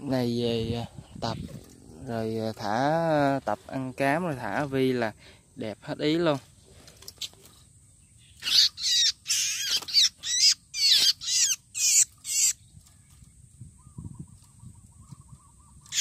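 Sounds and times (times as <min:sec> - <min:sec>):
bird harsh distress calls: 0:08.2 - 0:12.6, 0:15.0 - 0:16.0.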